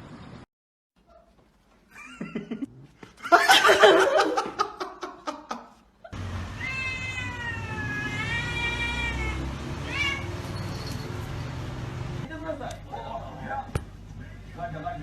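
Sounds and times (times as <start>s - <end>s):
cat meowing: 6.5s - 10.6s.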